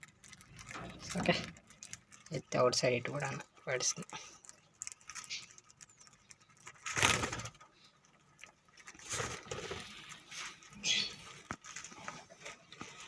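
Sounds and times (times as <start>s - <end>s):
rustling: 0.0s - 13.0s
budgies chirping and fluttering: 9.0s - 12.0s.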